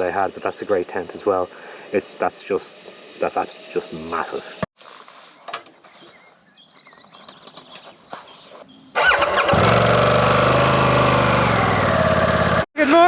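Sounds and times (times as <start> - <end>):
motorcycle engine starting and idling: 8.9 - 13.0.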